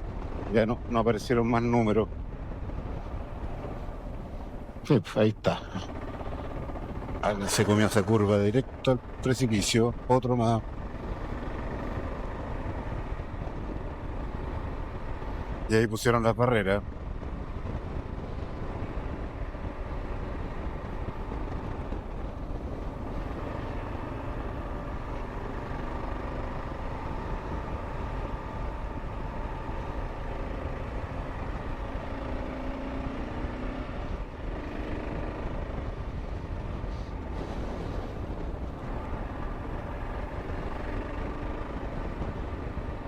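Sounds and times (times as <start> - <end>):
wind rush on microphone: 0.0 - 43.0
motorcycle engine running: 17.4 - 43.0.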